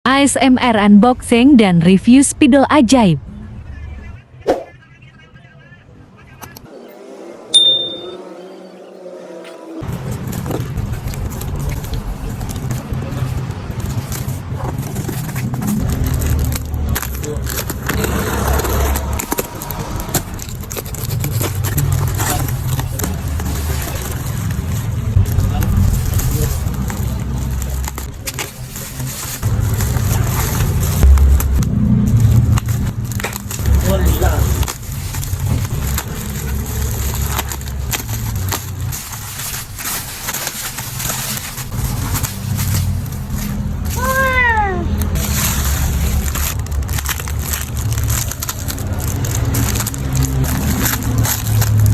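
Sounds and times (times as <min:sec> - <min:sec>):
packaging crinkling: 0:09.9 - 0:51.9
low rumble: 0:23.4 - 0:28.2, 0:29.4 - 0:37.6.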